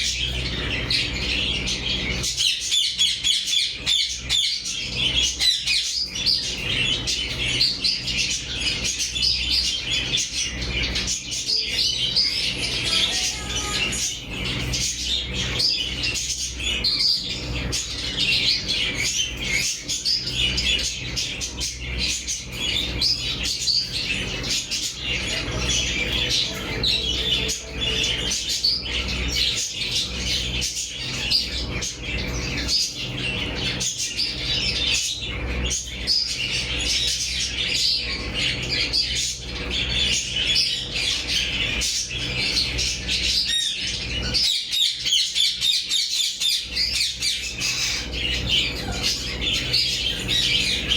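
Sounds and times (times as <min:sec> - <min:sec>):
parrots chattering and chirping: 0:00.0 - 0:50.9
low hum: 0:09.0 - 0:33.8.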